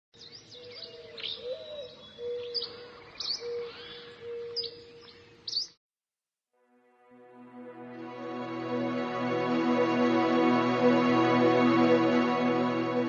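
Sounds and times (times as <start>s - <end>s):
birds chirping: 0.2s - 5.8s.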